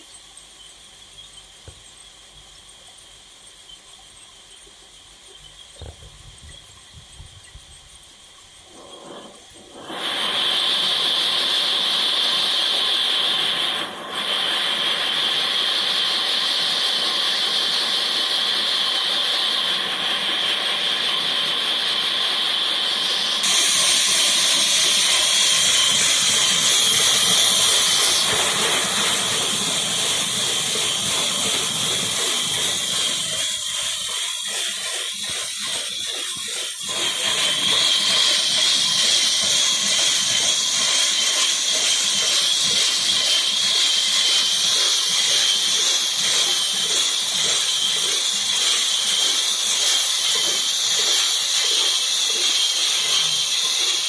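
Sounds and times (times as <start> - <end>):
power saw cutting wood: 23.0 - 54.0.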